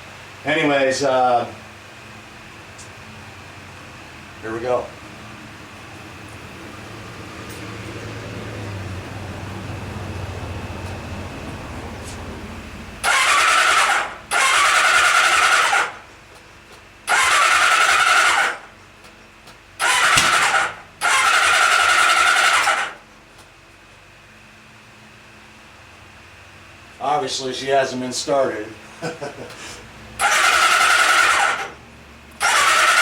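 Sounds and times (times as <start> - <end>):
motorcycle starter cranking engine: 13.0 - 16.0, 17.0 - 18.7, 19.8 - 23.0, 30.2 - 33.0.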